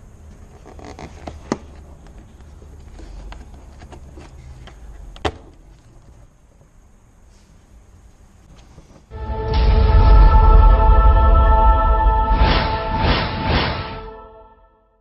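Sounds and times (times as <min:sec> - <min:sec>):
low steady rumble: 0:09.1 - 0:14.1.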